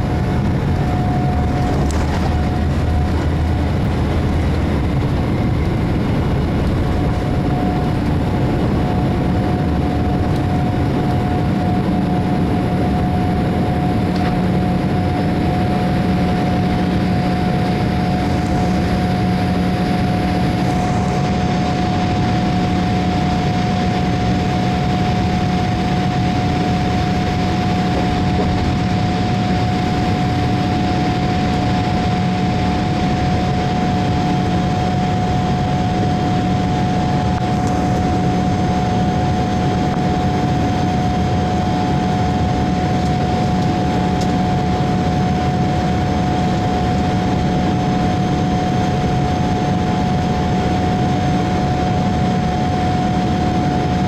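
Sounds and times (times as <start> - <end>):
jet engines running steadily: 0.0 - 54.0.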